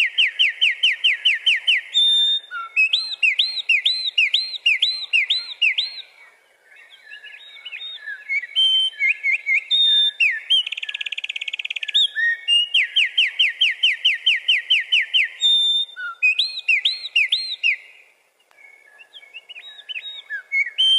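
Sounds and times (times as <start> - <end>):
wren singing: 0.0 - 20.9.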